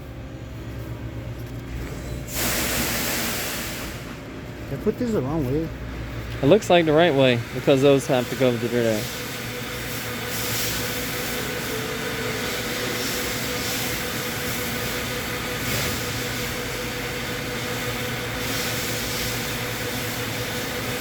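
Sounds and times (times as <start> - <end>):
machine whirring and hissing: 0.1 - 21.0
faint constant hum: 3.8 - 21.0.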